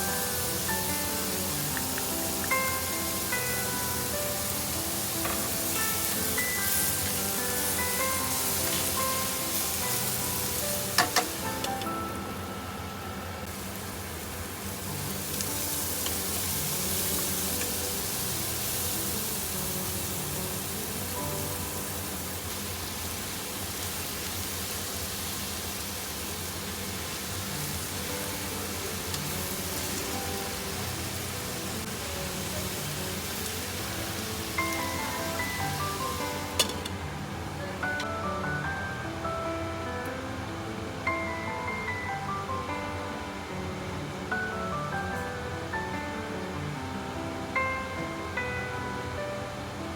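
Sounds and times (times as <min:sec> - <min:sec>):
background music: 0:00.0 - 0:13.5, 0:14.5 - 0:22.4, 0:27.4 - 0:49.9
food sizzling in a frying pan: 0:00.0 - 0:39.0.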